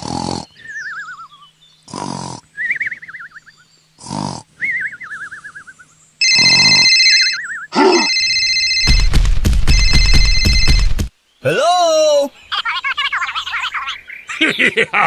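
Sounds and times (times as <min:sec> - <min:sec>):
cartoon snoring: 0:00.0 - 0:00.5, 0:01.9 - 0:02.5, 0:04.0 - 0:04.5, 0:07.8 - 0:08.1
alarm bell ringing: 0:06.2 - 0:07.4, 0:08.0 - 0:11.0.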